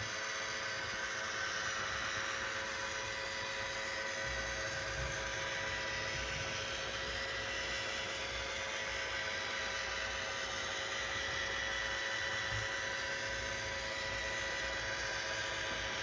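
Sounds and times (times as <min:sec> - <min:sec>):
robot vacuum whirring: 0:00.0 - 0:16.0.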